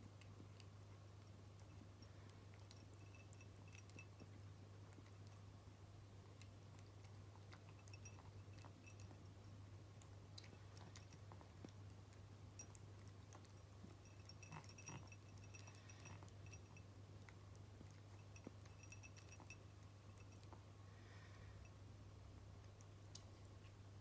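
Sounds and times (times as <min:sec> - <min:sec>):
cat chewing: 0:00.0 - 0:21.7, 0:22.5 - 0:24.0
clinks: 0:14.0 - 0:16.8, 0:18.2 - 0:20.5.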